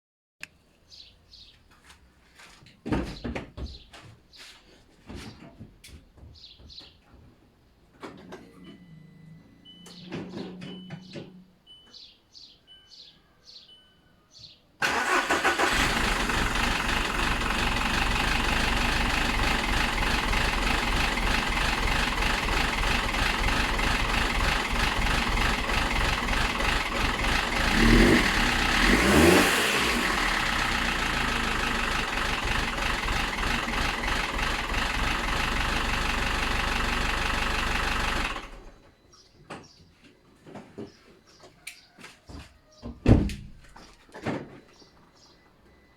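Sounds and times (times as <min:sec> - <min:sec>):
car engine running harshly: 0:14.8 - 0:38.7
engine revving: 0:14.8 - 0:38.7
car engine starting: 0:14.8 - 0:38.8.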